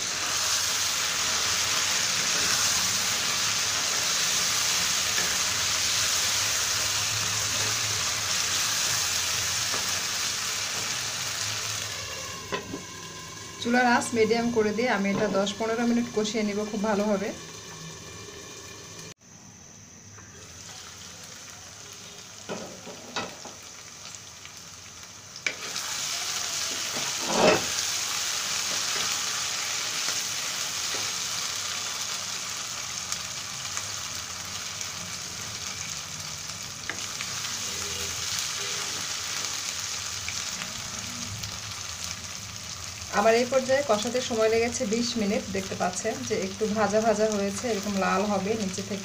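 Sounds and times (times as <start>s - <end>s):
food sizzling in oil: 0.0s - 19.2s, 20.3s - 49.0s.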